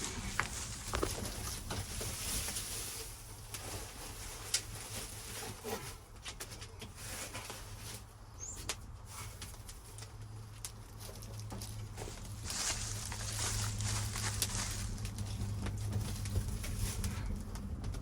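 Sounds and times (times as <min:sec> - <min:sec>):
rustling through dry leaves: 0:00.0 - 0:06.1, 0:11.0 - 0:17.6
twigs snapping: 0:12.2 - 0:16.3.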